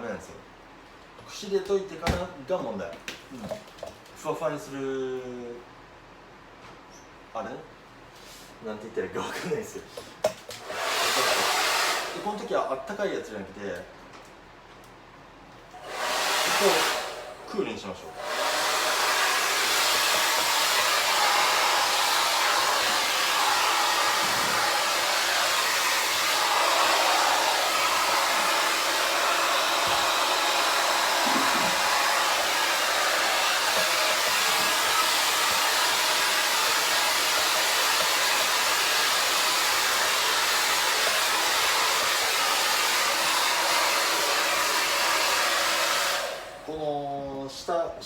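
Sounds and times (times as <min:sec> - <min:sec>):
hair dryer blowing: 0:10.5 - 0:12.5, 0:15.7 - 0:46.7.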